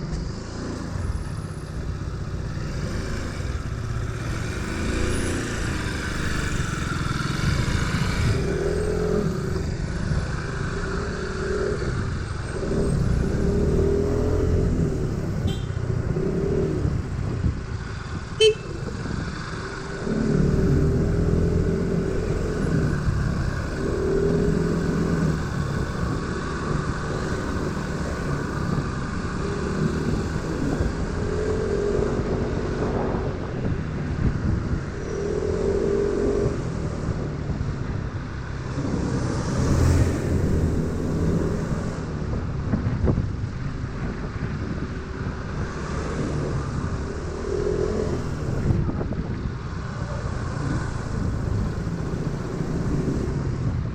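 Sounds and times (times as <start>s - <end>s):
wind rumble on microphone: 0.0s - 53.9s.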